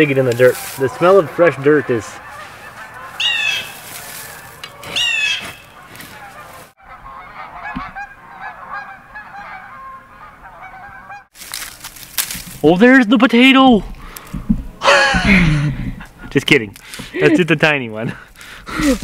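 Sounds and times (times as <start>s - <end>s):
flock of geese calling: 0.0s - 11.3s
goose honking: 0.0s - 11.3s.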